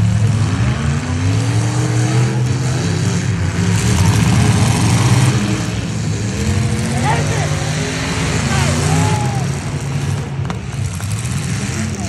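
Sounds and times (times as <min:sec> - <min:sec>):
truck engines revving: 0:00.0 - 0:12.0.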